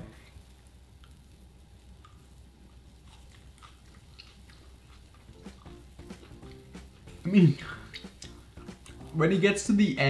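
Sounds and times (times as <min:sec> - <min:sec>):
faint chewing: 0:00.9 - 0:09.1
mouth clicks: 0:03.1 - 0:09.1.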